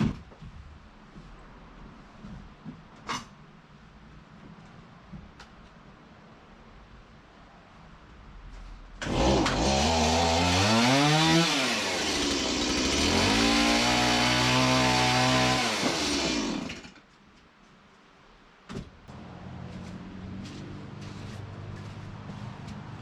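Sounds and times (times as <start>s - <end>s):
chainsaw cutting board: 9.0s - 16.9s.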